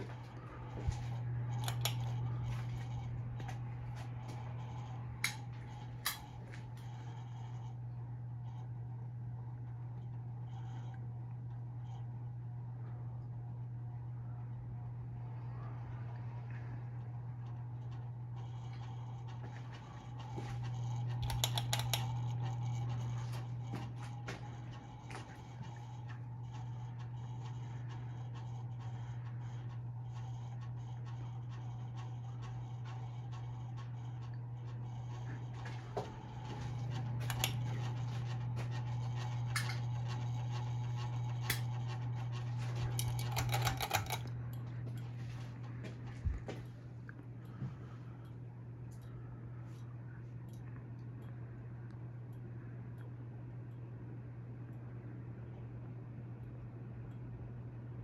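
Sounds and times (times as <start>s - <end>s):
ceiling fan motor hum: 0.0s - 58.0s
light clicks and ticks: 0.1s - 3.6s, 17.8s - 35.8s, 36.4s - 53.9s
light clicks: 1.0s - 2.2s, 19.8s - 23.5s.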